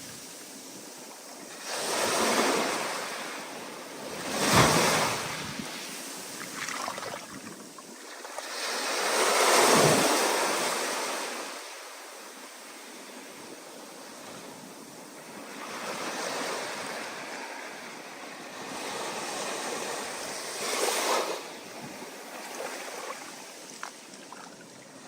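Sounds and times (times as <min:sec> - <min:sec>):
surf washing: 0:00.0 - 0:25.0.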